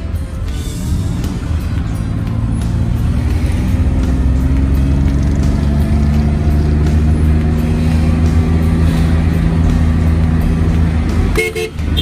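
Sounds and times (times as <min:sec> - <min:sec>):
vehicle driving on paved street: 0:00.0 - 0:12.0.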